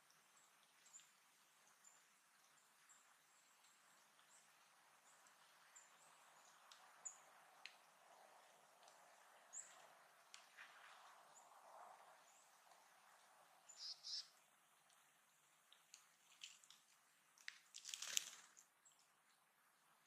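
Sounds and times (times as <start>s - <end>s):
soft outdoor hiss: 0.0s - 20.0s
high bird chirps: 13.7s - 14.3s.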